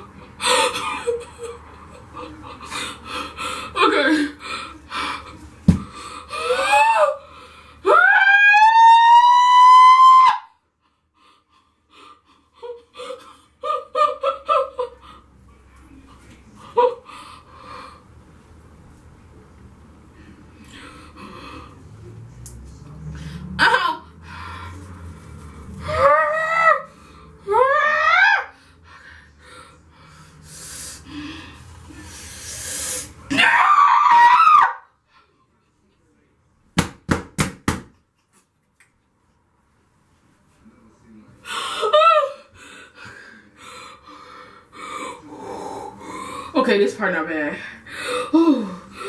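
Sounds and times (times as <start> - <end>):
woman moaning: 48.0 - 49.0
woman whimpering: 48.0 - 49.0.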